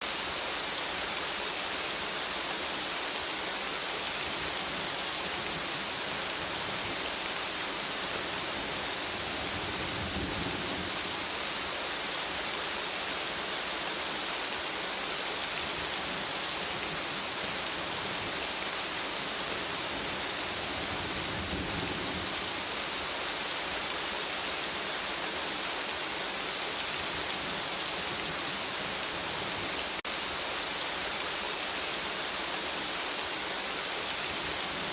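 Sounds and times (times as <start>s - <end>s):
rain falling on foliage: 0.0s - 34.9s.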